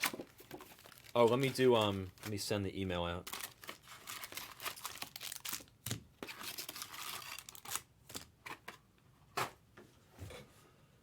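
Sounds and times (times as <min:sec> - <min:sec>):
rustling and crinkling: 0:00.0 - 0:02.5, 0:03.2 - 0:08.8.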